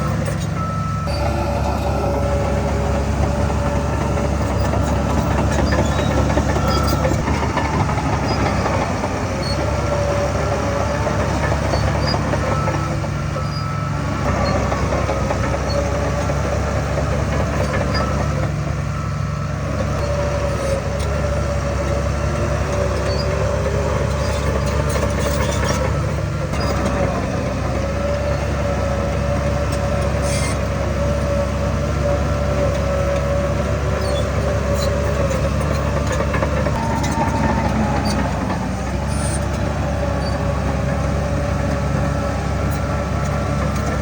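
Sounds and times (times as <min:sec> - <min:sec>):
heavy diesel machinery engine drone: 0:00.0 - 0:44.0
wavering whine: 0:01.1 - 0:07.3.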